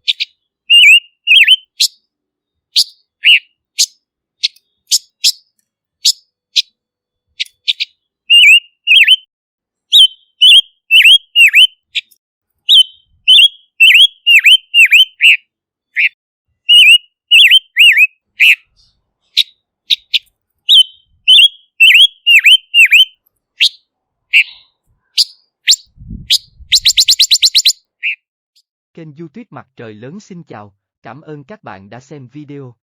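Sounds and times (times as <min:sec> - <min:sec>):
bird chirping and whistling: 0:00.0 - 0:02.0, 0:02.8 - 0:06.7, 0:07.4 - 0:09.3, 0:09.9 - 0:15.4, 0:16.0 - 0:18.8, 0:19.4 - 0:28.2.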